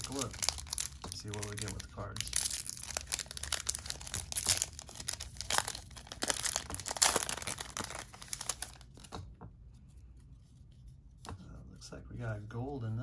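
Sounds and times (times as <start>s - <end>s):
foil wrapper tearing and crinkling: 0.0s - 9.1s.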